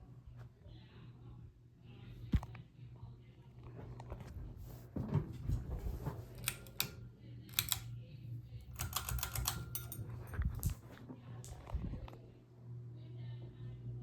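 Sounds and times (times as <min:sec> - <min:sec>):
ceiling fan motor hum: 0:00.0 - 0:14.0
sharp clicks: 0:06.4 - 0:07.9, 0:08.8 - 0:10.0.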